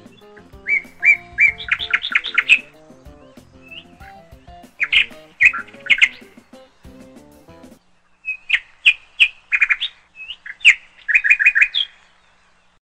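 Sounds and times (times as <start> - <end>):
music: 0.0 - 7.8
bird chirping: 0.0 - 12.8.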